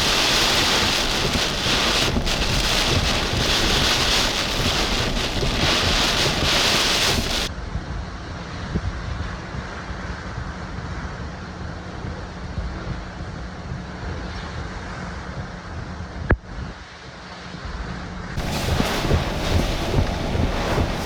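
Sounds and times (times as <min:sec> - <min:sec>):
strong wind buffeting microphone: 0:00.0 - 0:07.5, 0:18.4 - 0:21.0.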